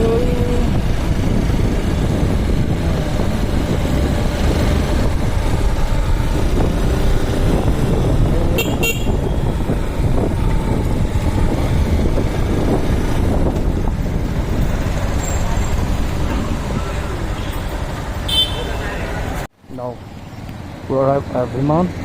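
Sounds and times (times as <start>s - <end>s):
motorcycle engine rumble: 0.0s - 22.0s
vehicle horn toots: 8.5s - 9.4s, 18.3s - 19.0s.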